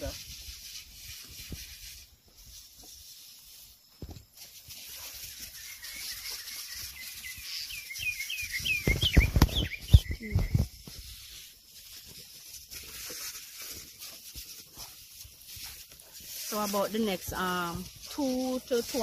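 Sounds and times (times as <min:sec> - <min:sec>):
footsteps through plants: 0:00.0 - 0:19.0
steady high hiss: 0:00.0 - 0:19.0
bird chirping: 0:05.2 - 0:10.9.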